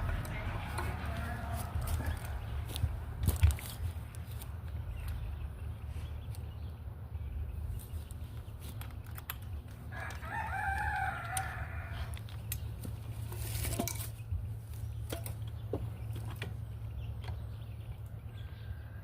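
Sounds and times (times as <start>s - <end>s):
steady low hum: 0.0s - 19.0s
rooster crowing: 0.4s - 2.5s, 9.9s - 12.2s.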